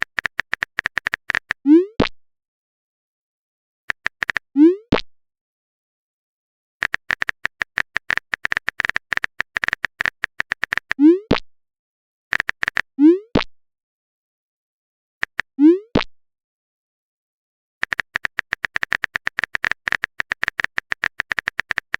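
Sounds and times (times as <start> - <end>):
phone keyboard typing clicks: 0.0 - 1.6, 3.9 - 4.4, 6.8 - 11.0, 12.3 - 12.9, 15.2 - 15.5, 17.8 - 21.9.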